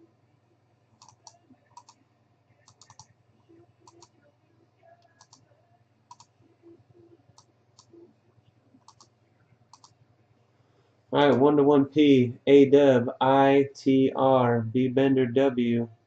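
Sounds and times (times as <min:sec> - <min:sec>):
faint irregular clicks: 0:01.0 - 0:02.0, 0:02.6 - 0:03.1, 0:03.8 - 0:04.2, 0:04.9 - 0:05.5, 0:06.1 - 0:06.3, 0:07.3 - 0:10.0
low hum: 0:11.2 - 0:15.6.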